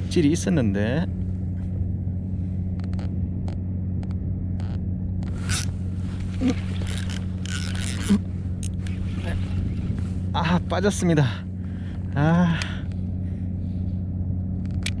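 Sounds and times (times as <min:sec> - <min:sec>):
steady low hum: 0:00.0 - 0:15.0
light clicks: 0:14.6 - 0:15.0.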